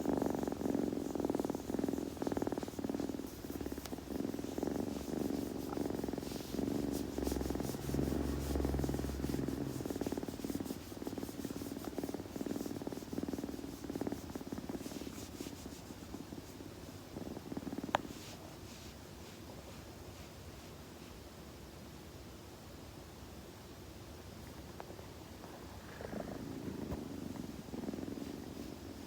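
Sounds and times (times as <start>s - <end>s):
tongue rasping on fur: 0.0s - 16.2s
kitten purring: 0.0s - 21.1s, 24.4s - 29.0s.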